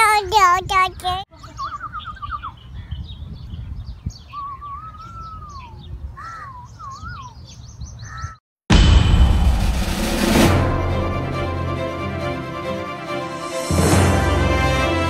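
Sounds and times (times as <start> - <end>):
birds chirping: 0.0 - 8.4
whistled bird calls: 1.4 - 3.2, 3.9 - 8.4
loud music: 8.7 - 15.0.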